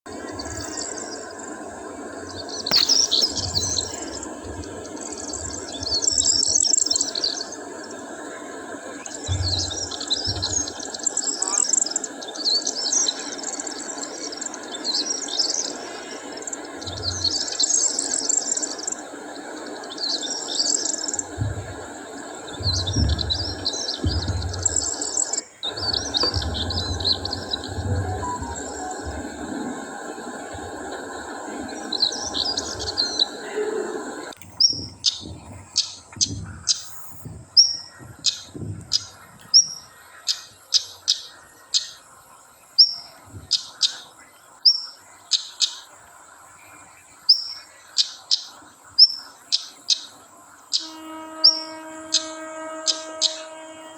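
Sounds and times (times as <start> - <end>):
small birds chirping: 0.0 - 53.9
steady background hiss: 0.1 - 53.9
low rumble: 25.7 - 33.5.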